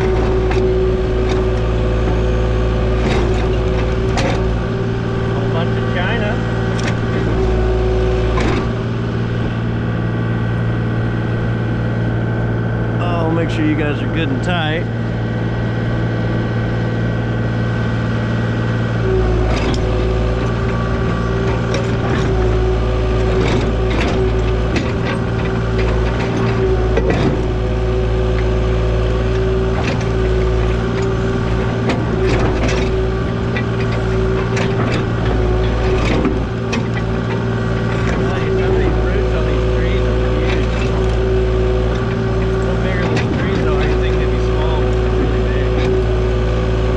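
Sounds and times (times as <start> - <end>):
knocks and clanks: 0.0 - 4.8, 5.4 - 7.6, 8.2 - 8.8, 19.4 - 46.1
diesel engine running: 0.0 - 46.9.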